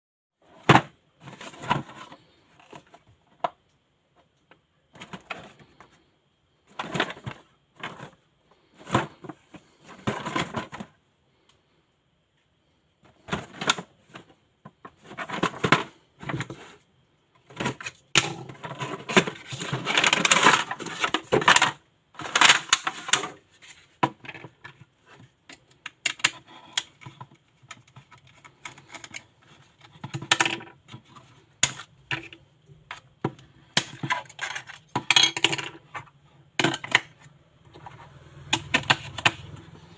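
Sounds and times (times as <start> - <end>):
small objects clicking and clattering: 24.0 - 39.6.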